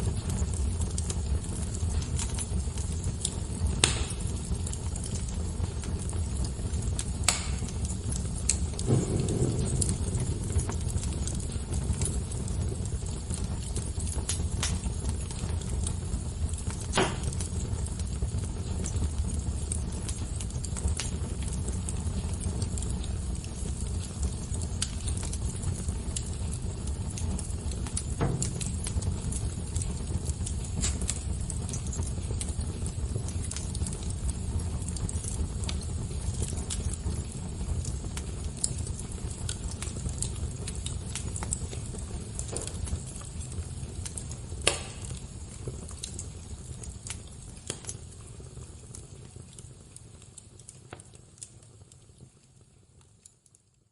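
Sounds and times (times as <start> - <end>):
fire pops: 0.0 - 53.6
wood fire crackling: 0.0 - 53.9.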